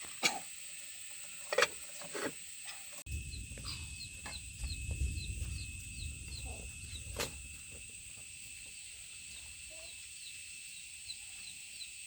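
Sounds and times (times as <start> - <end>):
low rumble: 3.1 - 9.0
high-pitched hum: 3.1 - 11.5
chicks peeping: 3.3 - 12.0.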